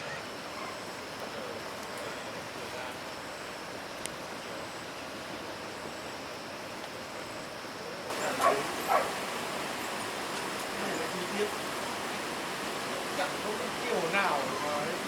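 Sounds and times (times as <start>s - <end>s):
steady background hiss: 0.0s - 15.0s
dog barking: 8.1s - 9.2s.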